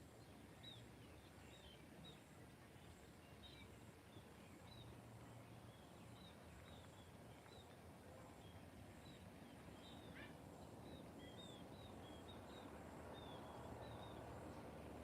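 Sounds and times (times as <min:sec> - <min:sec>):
low countryside hush: 0:00.0 - 0:15.0
bird chirping: 0:08.4 - 0:14.6.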